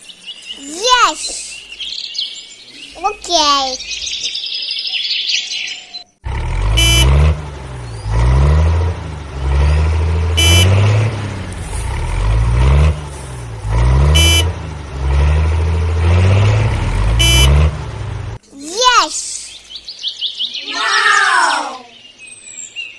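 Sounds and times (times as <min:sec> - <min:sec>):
synthesized toy engine rumble: 0:06.2 - 0:18.4
short horn beep: 0:06.8 - 0:07.2, 0:10.4 - 0:10.9, 0:14.1 - 0:14.6, 0:17.2 - 0:17.7.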